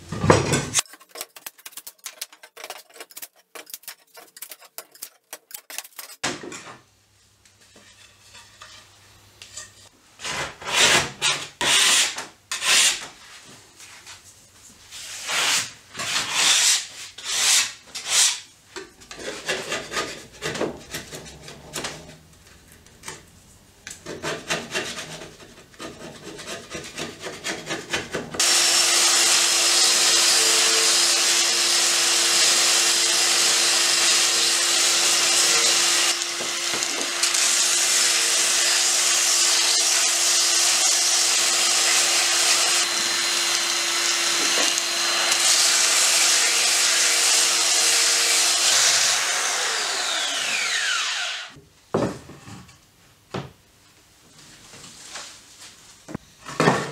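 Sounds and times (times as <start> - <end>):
electric power tool on wood: 28.4 - 51.6.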